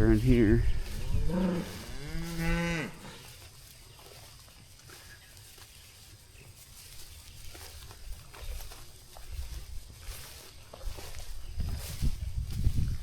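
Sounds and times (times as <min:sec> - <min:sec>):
cow mooing: 0:01.1 - 0:03.2.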